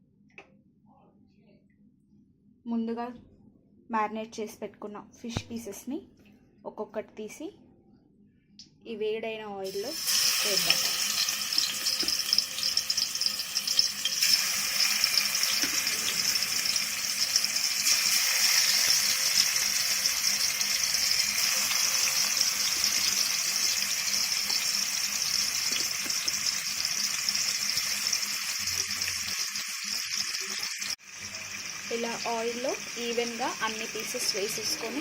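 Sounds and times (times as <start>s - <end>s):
fish sizzling in hot oil: 9.7s - 35.0s.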